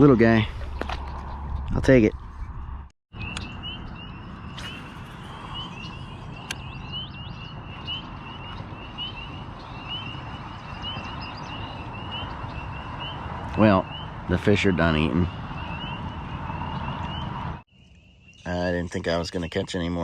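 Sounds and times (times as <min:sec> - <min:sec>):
steady low rumble: 0:00.0 - 0:17.6
high rising chirps: 0:03.1 - 0:18.5.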